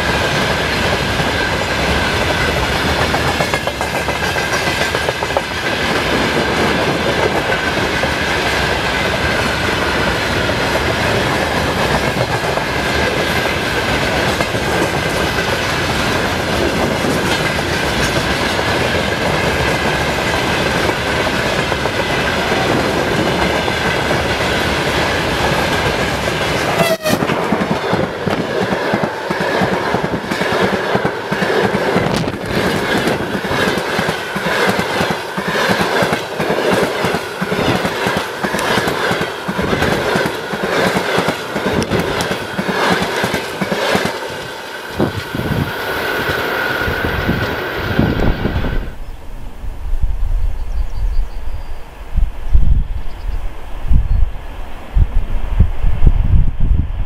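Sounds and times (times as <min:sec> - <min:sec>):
wheels clacking over rail joints: 0:00.0 - 0:47.9
freight train rumbling: 0:00.0 - 0:57.0.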